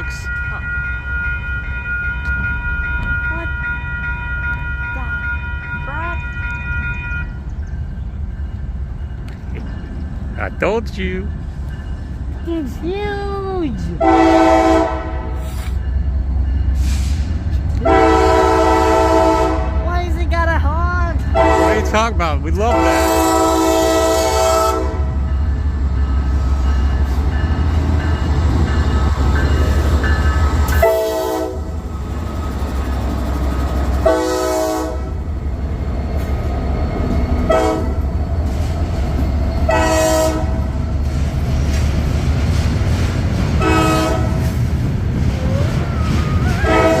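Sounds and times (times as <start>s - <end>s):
passing train rumble: 0.0s - 47.0s
locomotive air horn blasts: 14.0s - 15.5s, 17.8s - 19.8s, 21.4s - 22.0s, 22.7s - 25.2s, 30.8s - 31.7s, 34.0s - 35.2s, 37.5s - 38.0s, 39.7s - 40.6s, 43.6s - 44.5s, 46.4s - 47.0s.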